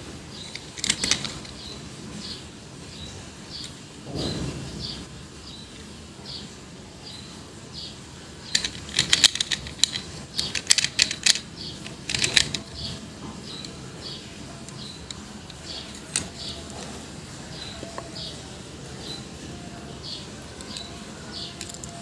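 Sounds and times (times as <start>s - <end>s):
objects clicking and rattling: 0.5s - 1.6s, 8.5s - 13.8s, 14.6s - 17.0s, 20.5s - 22.0s
small bird chirping: 9.8s - 22.0s.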